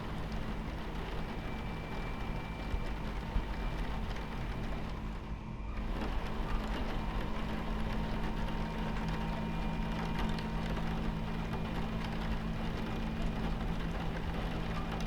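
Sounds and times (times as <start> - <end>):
faint rain pattering: 0.0 - 15.0
train rumble and hum: 0.0 - 15.0.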